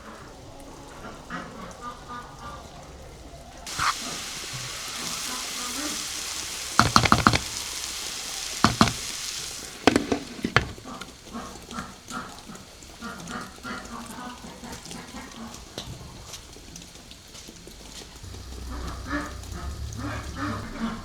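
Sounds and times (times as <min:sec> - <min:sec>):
utensil knocking against pan: 0:03.7 - 0:11.1
food sizzling in oil: 0:03.7 - 0:12.8.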